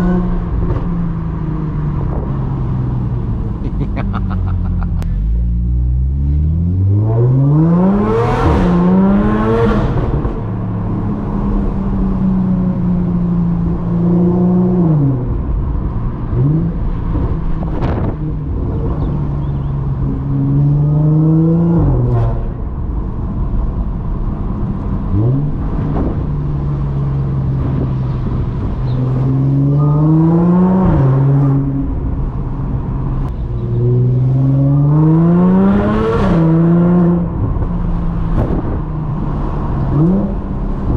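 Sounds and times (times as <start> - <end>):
car engine revving through gears: 5.7 - 10.5, 16.3 - 22.6, 24.8 - 32.4, 33.2 - 40.9.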